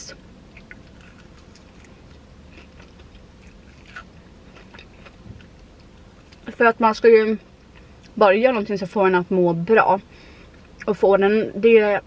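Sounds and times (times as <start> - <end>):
low steady hum: 0.0 - 12.0
person biting and chewing food: 0.5 - 6.5.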